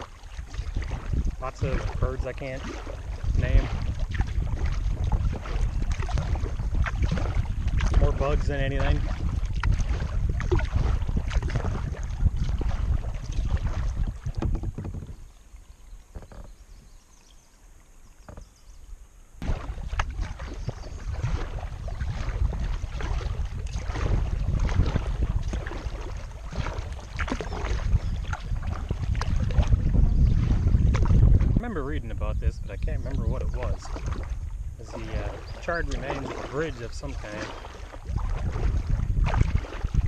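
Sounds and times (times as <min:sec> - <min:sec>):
wind rumbling on microphone: 0:00.0 - 0:17.3, 0:18.0 - 0:40.0
water and paddle splashes: 0:00.0 - 0:40.0.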